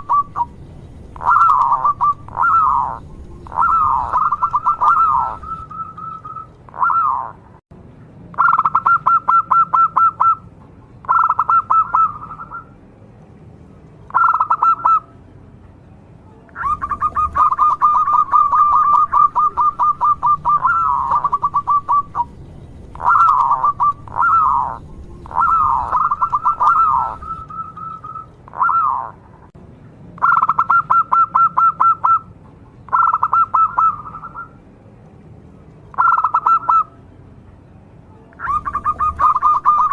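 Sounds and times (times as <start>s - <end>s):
dove cooing: 0.0s - 7.4s, 8.4s - 10.4s, 11.1s - 12.7s, 14.1s - 15.1s, 16.6s - 29.2s, 32.9s - 34.5s, 38.4s - 39.9s.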